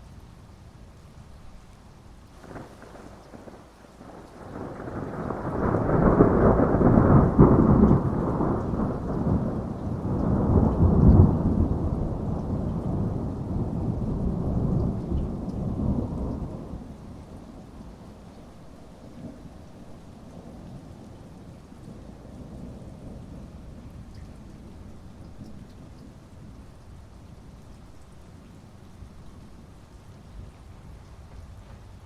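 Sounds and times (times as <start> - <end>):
steady rain: 0.0 - 32.0
thunder rumbling: 2.4 - 18.3.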